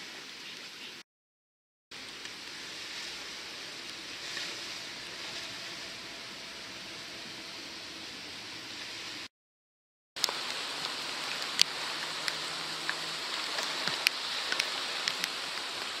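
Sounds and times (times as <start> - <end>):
water washing around kayak: 1.9 - 9.3, 10.2 - 16.0
water drips and small splashes: 10.2 - 16.0.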